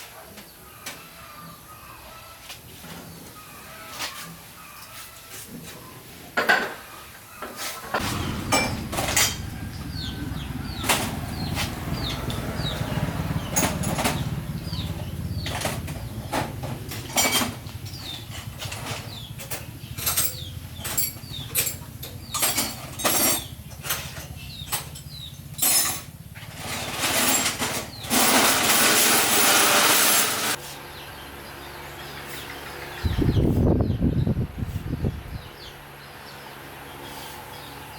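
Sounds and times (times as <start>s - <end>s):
birds chirping: 6.9s - 26.9s, 30.5s - 37.9s
metal clanking and knocking: 7.9s - 30.6s
low hum: 8.0s - 13.3s
loud rushing noise: 8.0s - 13.4s.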